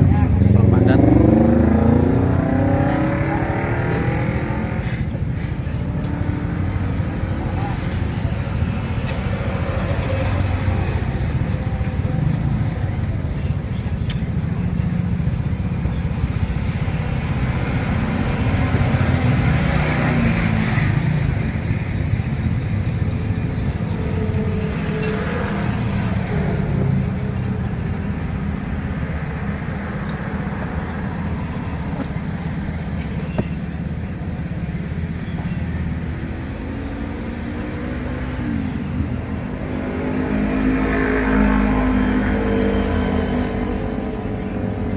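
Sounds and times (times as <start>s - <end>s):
louder vehicle passing: 0.0s - 13.4s, 35.9s - 44.9s
road traffic rumble: 0.0s - 44.9s.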